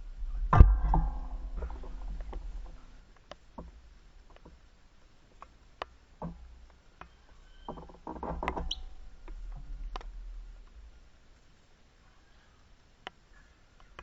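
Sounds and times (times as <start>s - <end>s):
low rumble: 0.0s - 3.1s
bird calls: 8.5s - 9.3s.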